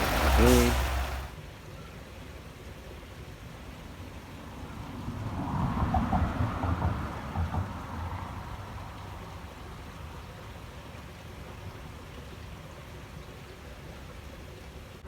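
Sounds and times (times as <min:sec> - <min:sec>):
river water rushing: 0:00.0 - 0:01.3.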